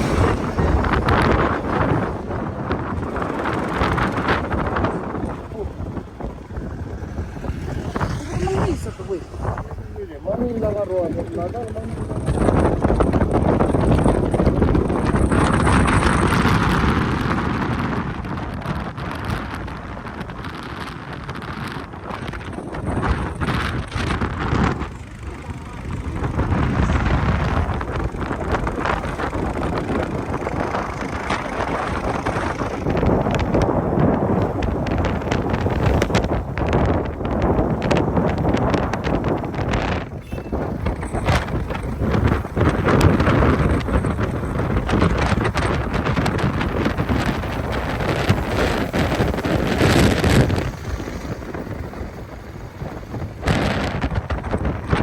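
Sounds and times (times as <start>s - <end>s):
road and vehicle noise: 0.0s - 55.0s
wind buffeting microphone: 0.0s - 55.0s.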